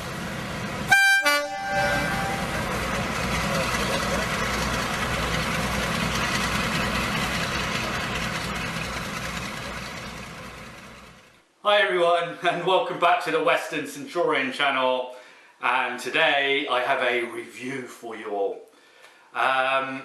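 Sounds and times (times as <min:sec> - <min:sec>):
train rumbling: 0:00.0 - 0:11.4
train horn toot: 0:00.9 - 0:02.8.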